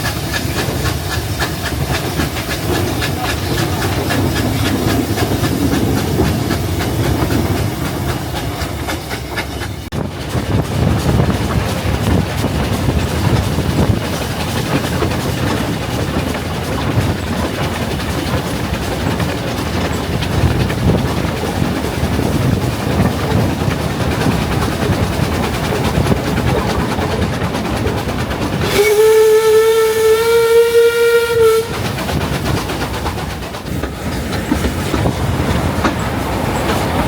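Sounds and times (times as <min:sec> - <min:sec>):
steam train rumble and rattle: 0:00.0 - 0:37.0
steam locomotive whistle: 0:28.6 - 0:31.9.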